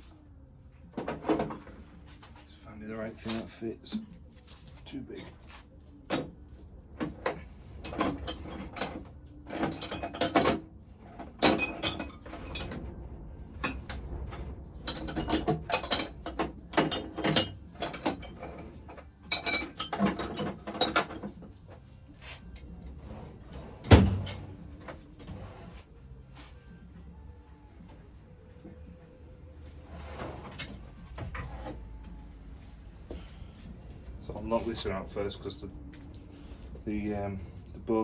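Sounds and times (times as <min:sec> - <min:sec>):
metal tools clinking: 0:07.0 - 0:12.9, 0:13.6 - 0:21.4.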